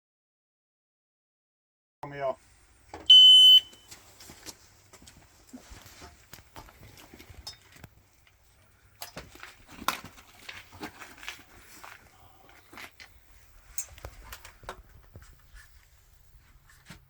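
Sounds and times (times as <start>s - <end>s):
footsteps: 3.4s - 8.2s
rustling: 3.7s - 17.0s
clicks and knocks of rifle gear: 3.8s - 15.9s.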